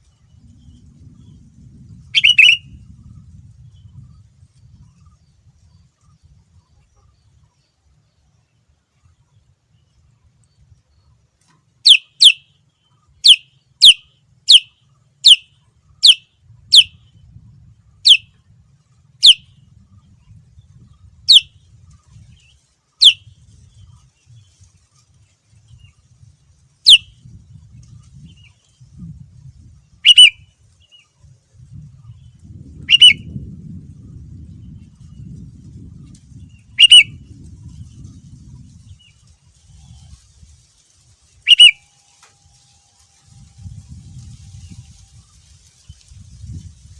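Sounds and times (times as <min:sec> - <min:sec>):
faint low rumble: 0:00.0 - 0:08.3
bird chirping: 0:02.1 - 0:02.8, 0:11.8 - 0:17.1, 0:18.0 - 0:18.3, 0:19.2 - 0:21.5, 0:22.1 - 0:23.9, 0:26.9 - 0:27.1, 0:30.0 - 0:31.1, 0:32.0 - 0:33.4, 0:36.4 - 0:37.2, 0:41.4 - 0:41.9.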